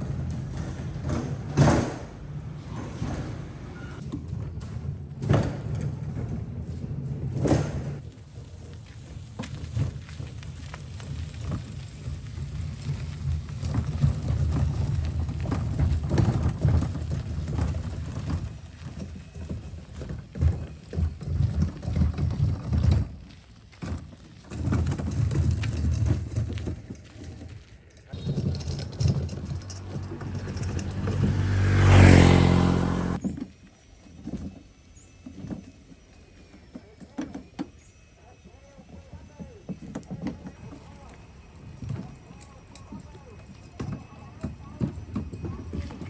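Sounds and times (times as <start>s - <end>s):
boat engine humming: 28.2s - 33.2s.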